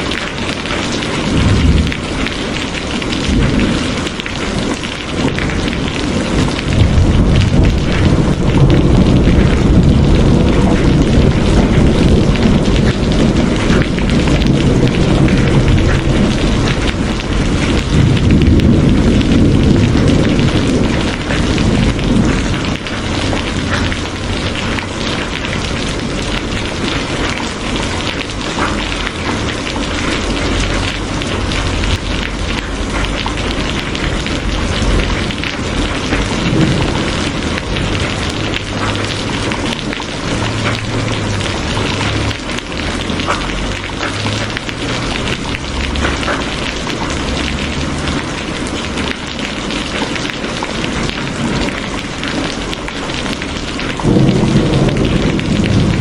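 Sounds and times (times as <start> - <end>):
steady rain falling: 0.0 - 56.0
low rumble: 6.4 - 24.8.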